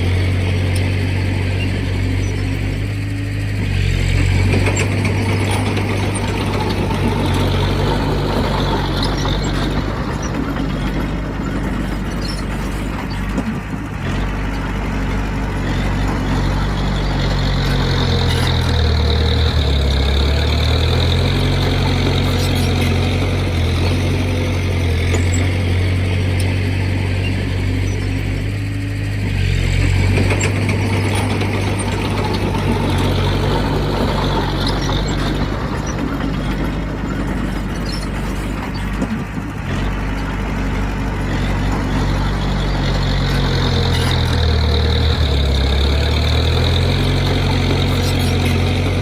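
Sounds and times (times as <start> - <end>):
heavy diesel engine running: 0.0 - 49.0.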